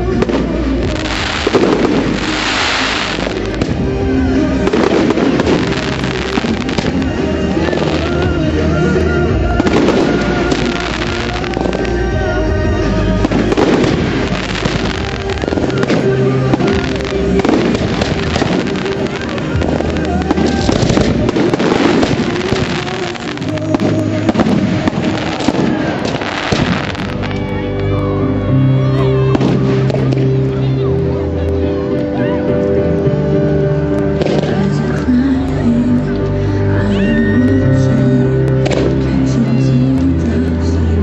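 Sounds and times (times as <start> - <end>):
firework bangs and crackles: 0.0 - 27.5, 29.3 - 31.6, 33.9 - 35.1, 38.4 - 39.4
loud music: 0.0 - 41.0.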